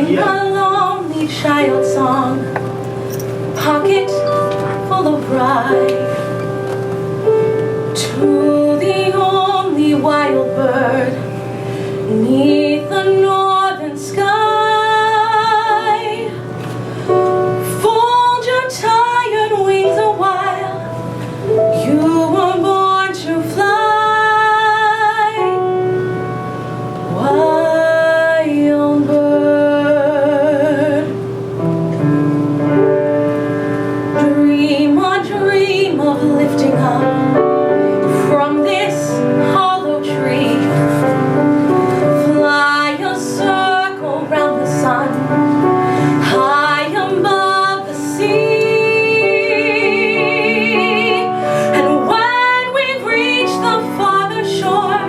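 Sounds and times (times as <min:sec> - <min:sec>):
person singing a slow song: 0:00.0 - 0:02.7, 0:08.0 - 0:16.5, 0:34.1 - 0:55.0
instrumental accompaniment: 0:00.0 - 0:55.0.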